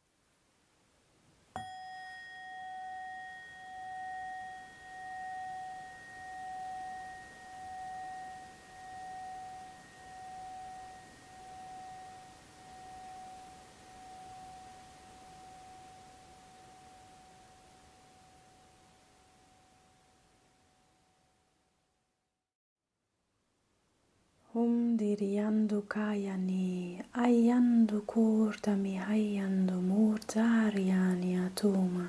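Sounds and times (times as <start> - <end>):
singing bowl ringing: 1.6 - 21.4.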